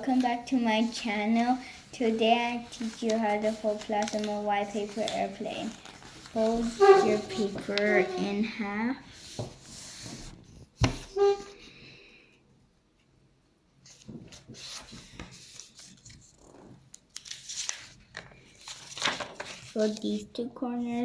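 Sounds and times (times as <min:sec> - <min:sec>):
paper rustling and crinkling: 0:00.0 - 0:08.5, 0:13.8 - 0:21.0.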